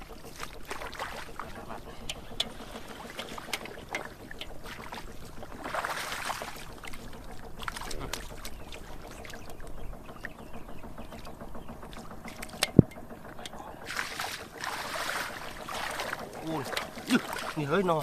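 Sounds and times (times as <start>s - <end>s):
water splashing and sloshing: 0.0s - 18.0s
small knocks and clicks: 6.7s - 13.7s.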